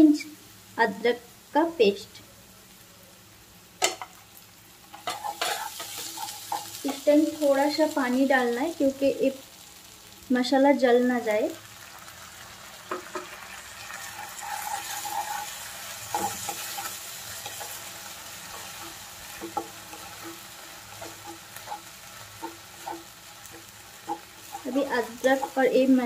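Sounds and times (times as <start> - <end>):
paste sizzling in oil: 0.2 - 26.0
spatula stirring and scraping: 4.8 - 7.2, 12.9 - 26.0
spatula knocking on pan: 18.8 - 25.7.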